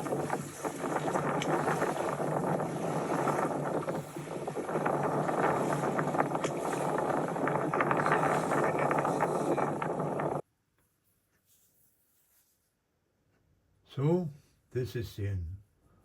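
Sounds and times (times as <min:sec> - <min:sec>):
water rushing and splashing: 0:00.0 - 0:10.4
wind buffeting microphone: 0:00.0 - 0:10.4.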